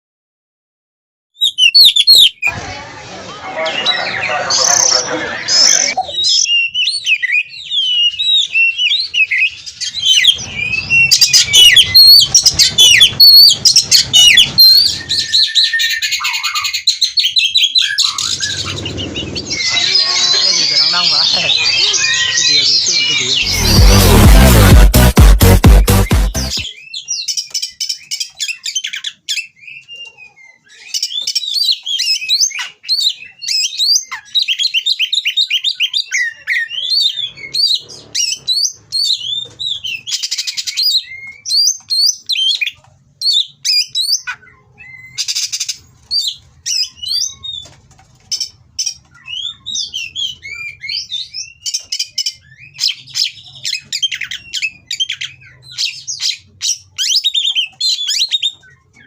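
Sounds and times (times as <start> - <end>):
songbird singing whistled trills: 1.4 - 2.5, 5.8 - 18.8.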